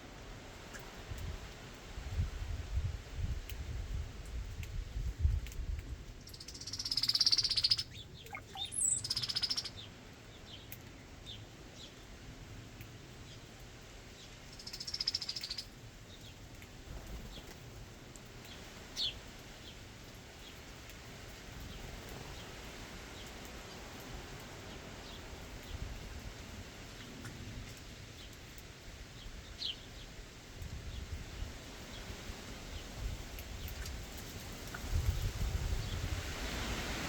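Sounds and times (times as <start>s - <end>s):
harsh buzzy bird calls: 6.3s - 9.8s
short bird chirps: 6.6s - 9.7s.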